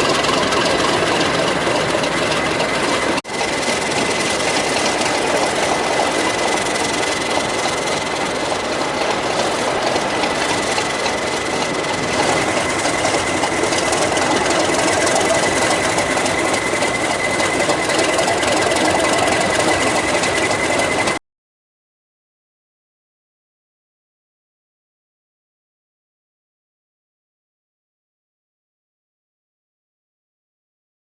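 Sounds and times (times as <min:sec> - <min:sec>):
diesel locomotive engine running: 0:00.0 - 0:21.2.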